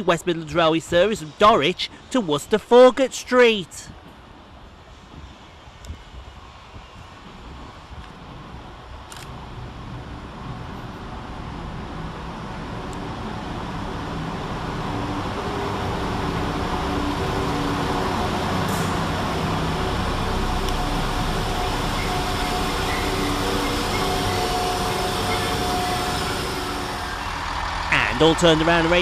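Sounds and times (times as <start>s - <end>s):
diesel train engine approaching: 0.0s - 29.0s
steady engine hum: 3.7s - 29.0s.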